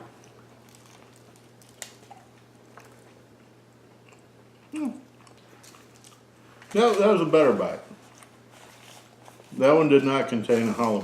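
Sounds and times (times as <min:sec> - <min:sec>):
person chewing food: 0:00.0 - 0:06.7, 0:07.9 - 0:09.5.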